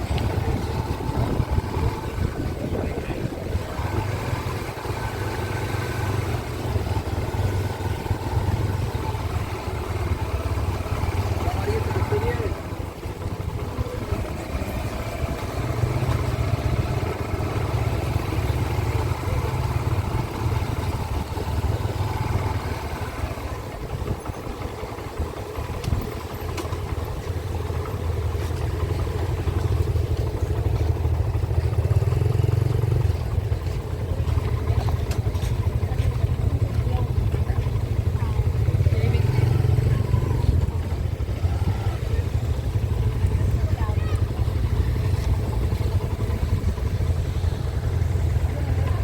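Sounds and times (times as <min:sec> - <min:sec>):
wind rumble on microphone: 0:00.0 - 0:04.4
motorcycle engine running: 0:00.0 - 0:49.0.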